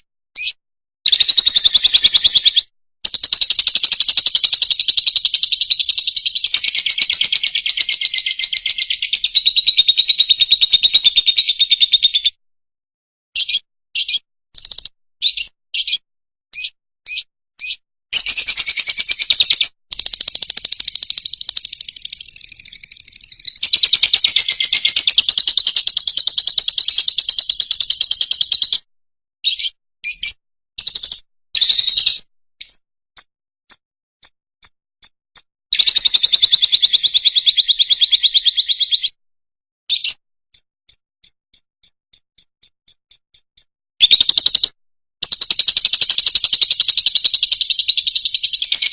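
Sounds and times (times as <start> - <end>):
lovebird chirping: 1.1 - 12.3, 13.4 - 16.0, 16.6 - 28.8, 29.4 - 32.8, 35.8 - 39.2, 39.9 - 40.2, 43.4 - 48.9.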